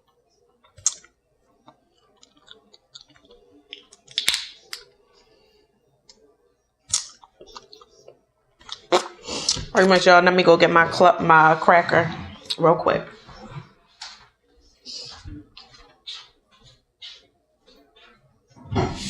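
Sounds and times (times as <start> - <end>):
shell snapping: 3.7 - 4.8.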